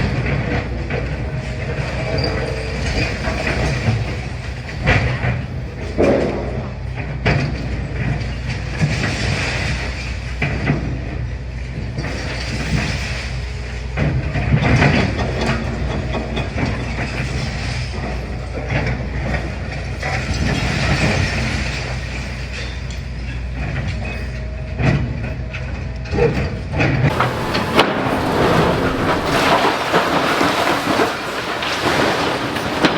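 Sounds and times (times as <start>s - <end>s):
rubble and metal crunching: 0.0s - 25.6s, 26.2s - 32.9s
excavator diesel engine running: 27.0s - 32.9s.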